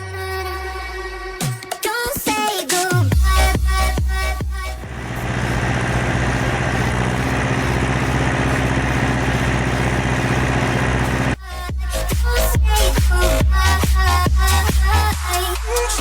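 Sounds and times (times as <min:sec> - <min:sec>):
tractor diesel engine running: 0:03.9 - 0:11.4.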